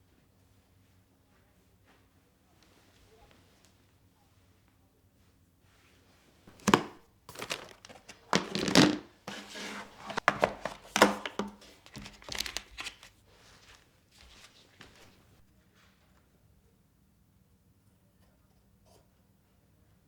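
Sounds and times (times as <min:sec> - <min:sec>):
crinkly material rustling: 0:06.5 - 0:15.3.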